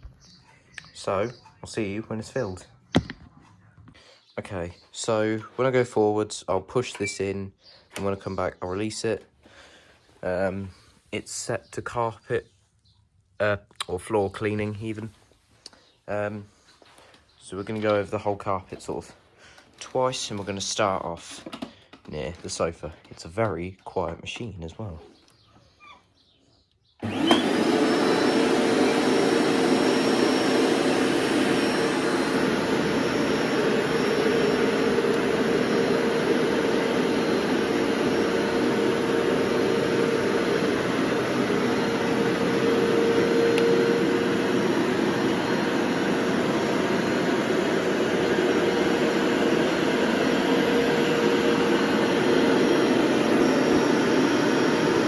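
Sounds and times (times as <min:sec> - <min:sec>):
carpet washer motor humming: 0:27.0 - 0:55.0
suction noise: 0:27.0 - 0:55.0.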